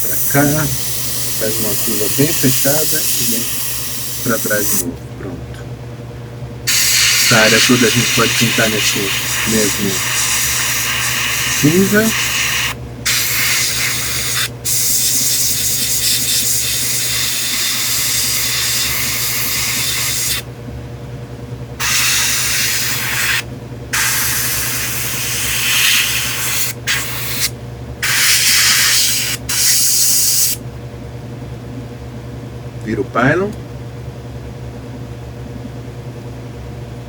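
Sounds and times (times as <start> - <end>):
airbrush spraying hiss: 0.0 - 4.8, 6.7 - 17.2, 21.8 - 23.4, 24.0 - 30.6
steady low hum: 0.0 - 37.0.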